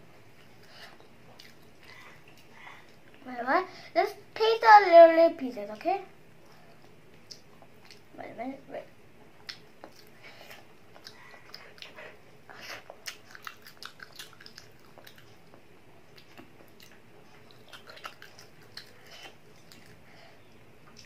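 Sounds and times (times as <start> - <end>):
child chewing: 0.4 - 3.2, 6.4 - 8.1, 9.4 - 21.0
mouth clicks and smacks: 7.2 - 8.1, 12.9 - 15.3, 16.1 - 20.0.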